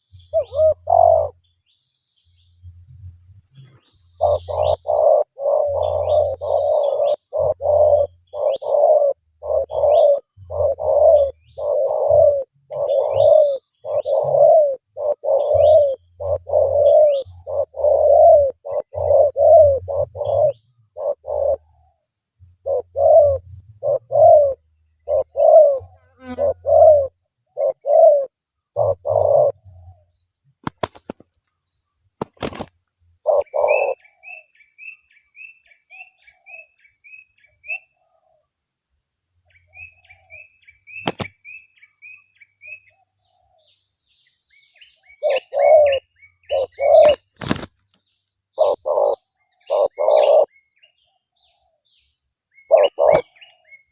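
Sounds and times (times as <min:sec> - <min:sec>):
dove cooing: 0:00.0 - 0:01.4, 0:04.2 - 0:30.1, 0:32.4 - 0:35.0, 0:39.7 - 0:41.3, 0:45.0 - 0:47.7, 0:48.5 - 0:50.5, 0:52.6 - 0:53.8
small birds chirping: 0:00.0 - 0:38.5, 0:39.4 - 0:53.9
sharp clicks: 0:30.6 - 0:31.5, 0:41.0 - 0:41.3.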